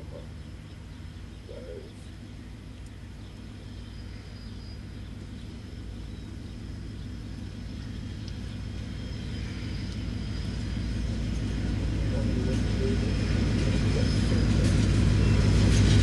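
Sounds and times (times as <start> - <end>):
diesel locomotive engine rumble: 0.0 - 16.0.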